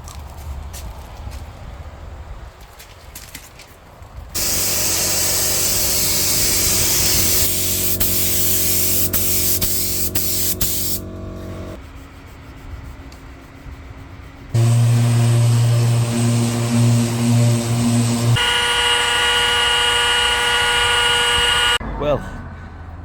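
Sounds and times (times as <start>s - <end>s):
paint spray hiss: 4.4s - 11.7s, 14.6s - 18.4s
machine hum: 4.4s - 11.8s, 14.6s - 21.8s.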